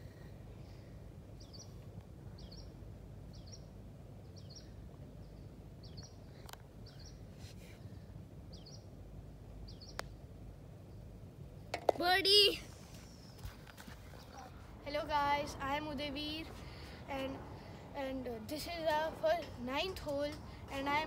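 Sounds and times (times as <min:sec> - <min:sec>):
low outdoor rumble: 0:00.0 - 0:21.0
putter striking golf ball: 0:11.7 - 0:12.1.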